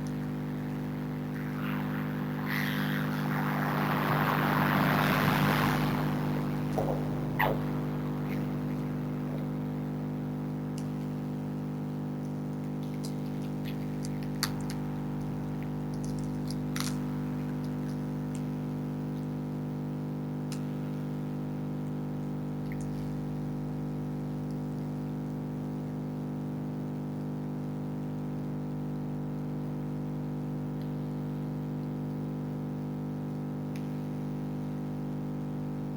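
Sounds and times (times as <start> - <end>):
freezer humming: 0.0 - 19.6.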